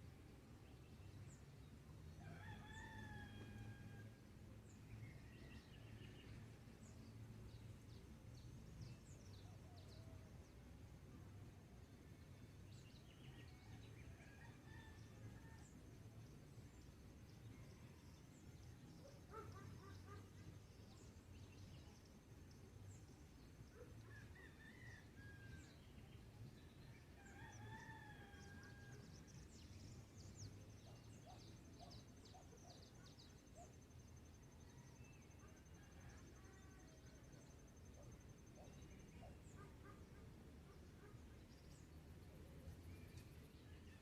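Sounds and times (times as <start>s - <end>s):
distant rooster crowing: 2.2s - 4.2s, 24.2s - 25.8s, 27.2s - 29.1s.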